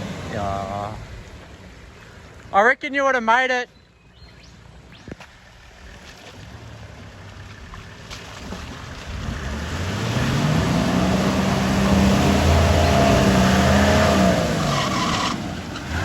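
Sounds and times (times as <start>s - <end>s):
off-road vehicle engine revving: 0.0s - 1.4s, 6.6s - 16.0s
water rushing through mud: 0.0s - 2.6s, 4.9s - 16.0s.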